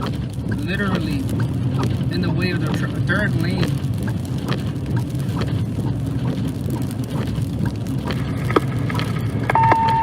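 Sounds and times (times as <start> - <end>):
vehicle rumble from inside cab: 0.0 - 10.0
radio scanner beep tone: 9.5 - 10.0.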